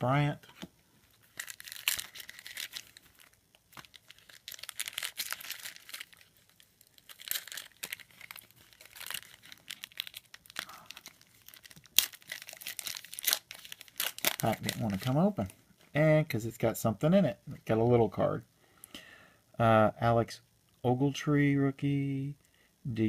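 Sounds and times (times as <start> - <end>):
plastic foil wrapper tearing: 1.2 - 15.5.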